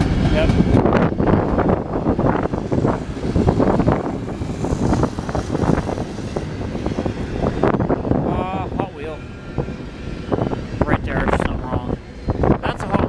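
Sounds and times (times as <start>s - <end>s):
train wheels clattering on rails: 0.0s - 8.0s.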